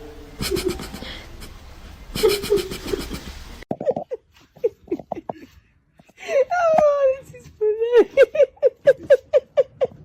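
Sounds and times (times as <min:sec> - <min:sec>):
person laughing: 0:00.4 - 0:01.6, 0:02.2 - 0:06.8, 0:07.9 - 0:10.0.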